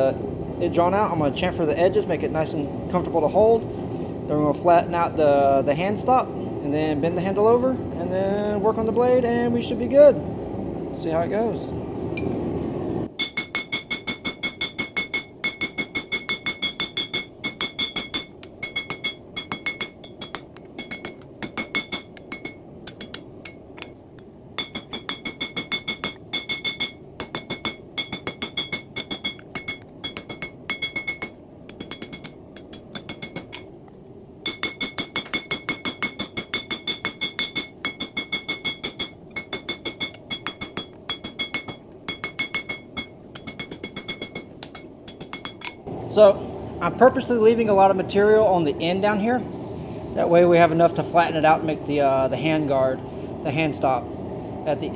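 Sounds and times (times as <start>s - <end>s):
hammer striking steel on anvil: 12.2s - 12.6s, 13.2s - 33.7s, 34.4s - 45.9s.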